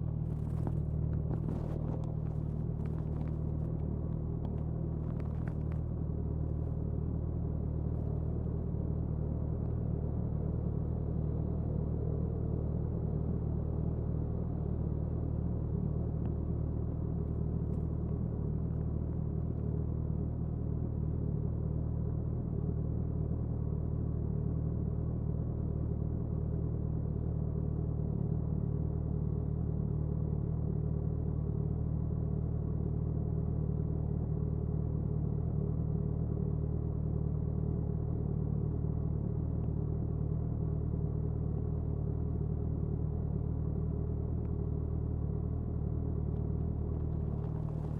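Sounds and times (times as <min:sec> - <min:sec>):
motorcycle exhaust cruising: 0:46.2 - 0:47.9.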